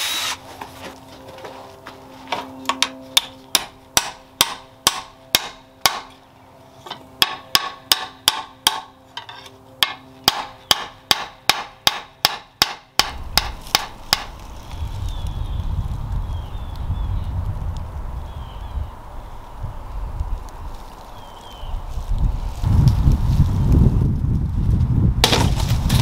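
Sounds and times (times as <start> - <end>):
low rumbling noise: 13.0 - 26.0.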